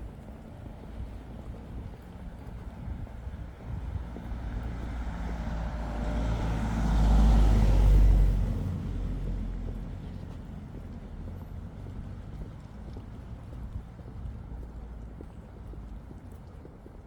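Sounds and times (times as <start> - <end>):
vehicle driving past: 4.6 - 10.1.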